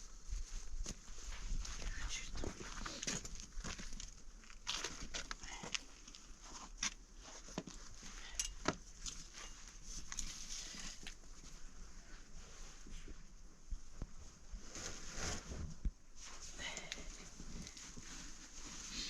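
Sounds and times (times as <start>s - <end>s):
rustling: 9.0s - 19.0s.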